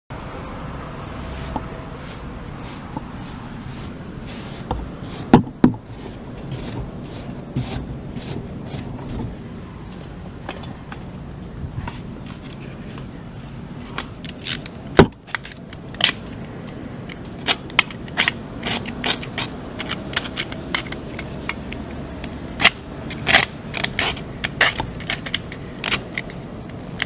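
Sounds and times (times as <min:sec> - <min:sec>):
steady low background: 0:00.1 - 0:15.0
hand tool clicks and scrapes: 0:01.1 - 0:09.3, 0:13.8 - 0:27.0.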